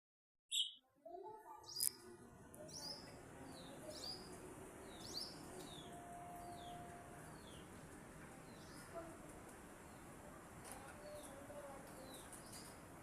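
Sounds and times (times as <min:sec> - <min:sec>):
parrots chirping: 0:00.5 - 0:00.8.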